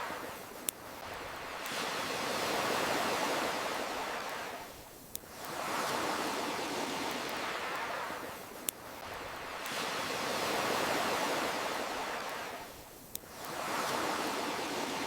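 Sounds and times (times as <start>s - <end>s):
ocean surf washing: 0.0s - 15.0s.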